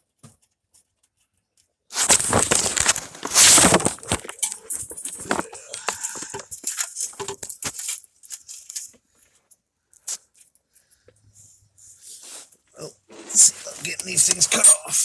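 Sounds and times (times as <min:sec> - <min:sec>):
metallic clinking and clicking: 0:03.3 - 0:08.9.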